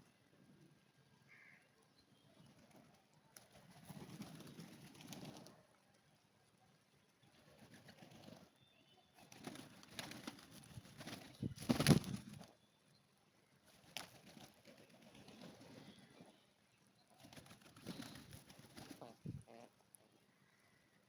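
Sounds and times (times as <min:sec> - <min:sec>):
wings flapping: 0:02.4 - 0:05.6, 0:07.4 - 0:08.6, 0:09.2 - 0:12.6, 0:13.7 - 0:16.3, 0:17.1 - 0:19.7.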